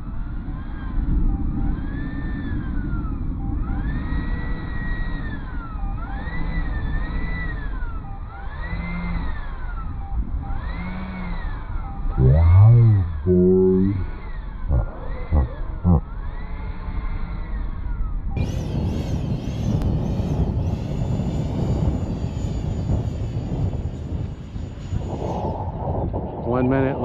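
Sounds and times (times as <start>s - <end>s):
model airplane motor whining: 12.2s - 14.1s
wavering pitched sound: 12.2s - 14.1s, 14.7s - 16.0s
wind noise on microphone: 12.2s - 14.1s, 18.4s - 27.0s.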